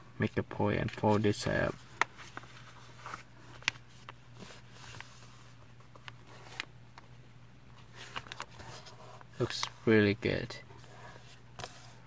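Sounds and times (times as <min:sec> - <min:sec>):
faint steady hum: 0:00.0 - 0:12.0
paper rustling and creasing: 0:00.8 - 0:06.7.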